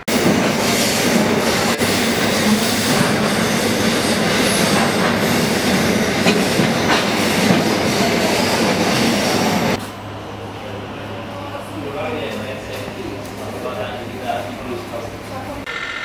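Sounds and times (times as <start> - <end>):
train wheels rumbling on rail: 0.0 - 10.4.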